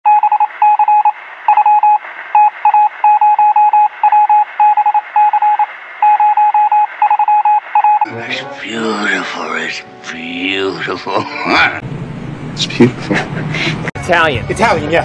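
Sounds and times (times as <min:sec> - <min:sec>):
morse code beeping: 0:00.1 - 0:08.2.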